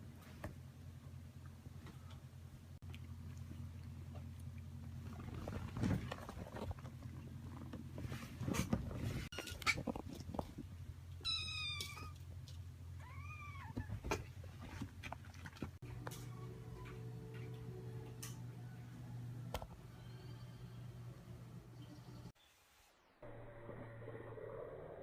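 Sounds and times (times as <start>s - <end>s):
low steady hum: 0.0s - 22.4s
rustles and small knocks: 3.4s - 11.0s
cat meowing: 11.2s - 12.2s.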